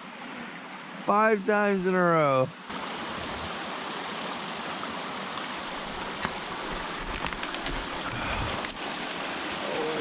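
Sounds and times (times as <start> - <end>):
mountain stream running: 0.0 - 10.0
small ticks and splashes: 5.6 - 9.8.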